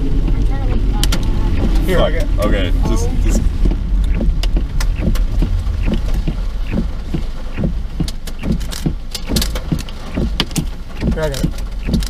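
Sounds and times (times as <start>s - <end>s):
low rumble inside car: 0.0s - 12.0s
sharp taps and clicks: 3.3s - 12.0s.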